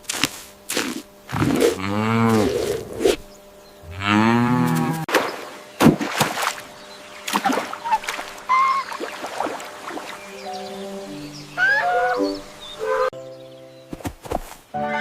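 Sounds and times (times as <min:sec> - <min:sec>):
cow mooing: 0:01.6 - 0:02.9, 0:03.8 - 0:05.1.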